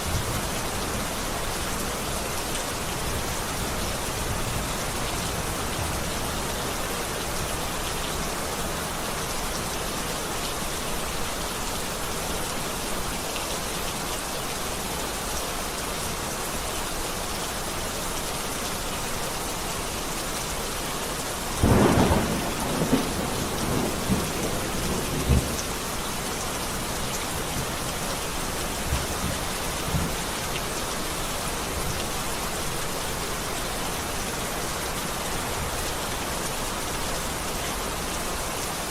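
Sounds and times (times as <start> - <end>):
heavy rain falling: 0.0 - 38.9
thunder crack and rumbles: 21.6 - 25.6.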